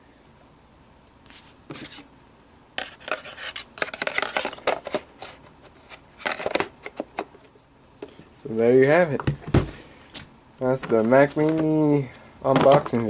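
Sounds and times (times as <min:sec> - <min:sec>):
hard objects scraping and rubbing: 0:02.8 - 0:07.2.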